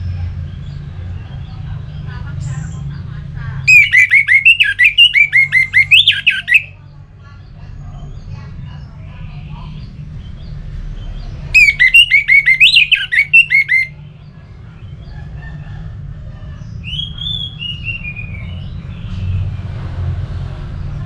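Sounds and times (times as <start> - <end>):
thrush singing whistled notes: 3.7 - 6.8, 11.5 - 14.0.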